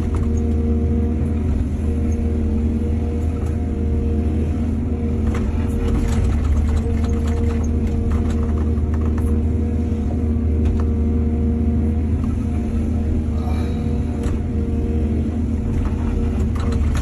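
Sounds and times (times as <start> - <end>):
excavator diesel engine running: 0.0 - 17.0
knocks and clatters: 5.3 - 9.3, 15.7 - 17.0.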